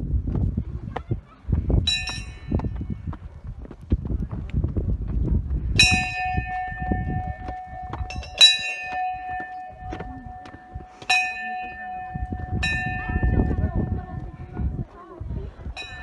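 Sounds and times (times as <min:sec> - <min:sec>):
metal temple bell ringing: 0:01.9 - 0:02.6, 0:05.8 - 0:14.9, 0:15.7 - 0:16.0.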